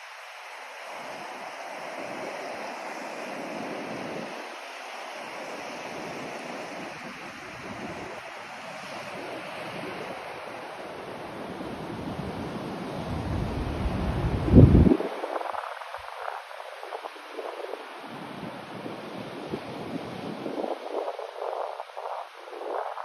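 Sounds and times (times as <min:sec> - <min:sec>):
steady white noise: 0:10.7 - 0:23.0.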